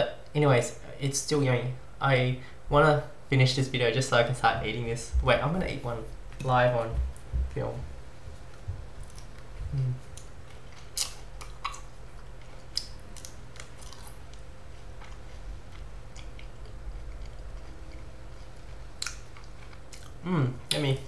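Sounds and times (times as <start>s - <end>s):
steady low hum: 0.0s - 21.0s
person chewing: 8.4s - 20.9s.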